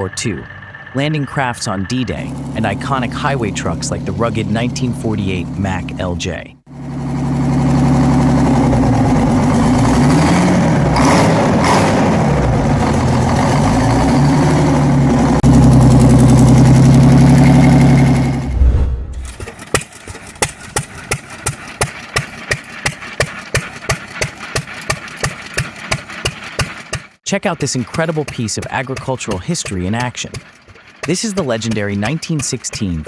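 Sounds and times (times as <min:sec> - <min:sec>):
slow engine exhaust beat: 0:00.0 - 0:06.0
diesel engine revving: 0:00.0 - 0:19.4.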